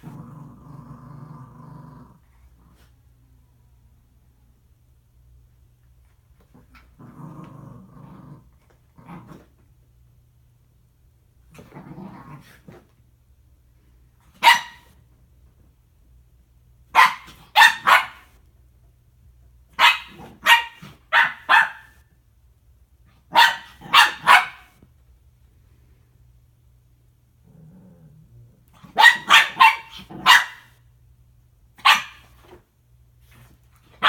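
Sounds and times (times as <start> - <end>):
dog growling: 0.0 - 2.9, 6.6 - 9.5, 11.5 - 12.6, 27.4 - 28.6
dog barking: 14.4 - 14.9, 16.9 - 18.4, 19.8 - 22.0, 23.3 - 24.8, 28.9 - 30.8, 31.8 - 32.3.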